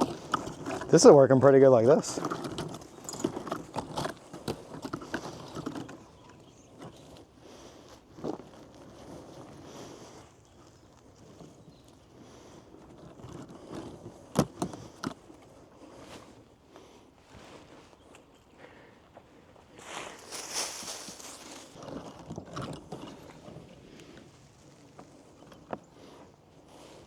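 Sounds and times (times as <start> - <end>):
digging in moist soil: 19.7 - 27.0.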